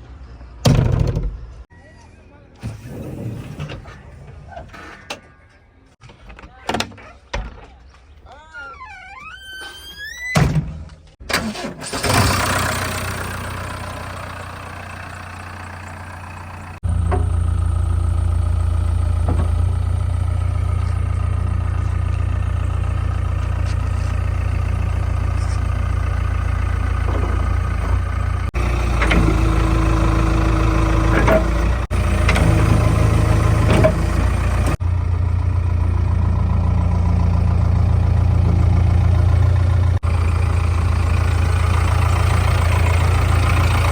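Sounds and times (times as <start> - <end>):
heavy machinery diesel engine drone: 11.4 - 43.9.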